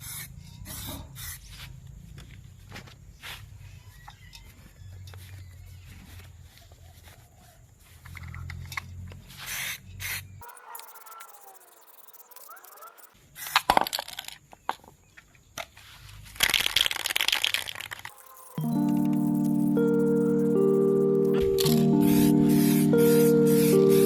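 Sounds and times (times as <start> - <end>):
spray paint can hissing: 10.4 - 13.1.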